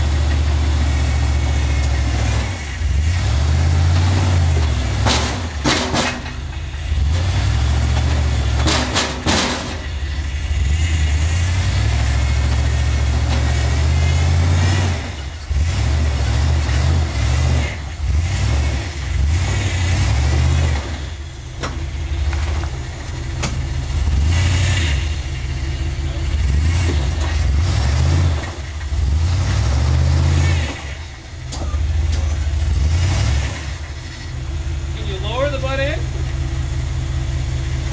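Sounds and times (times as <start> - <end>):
off-road vehicle engine revving: 0.0 - 37.9
sharp knocks: 4.0 - 7.3, 7.9 - 10.0.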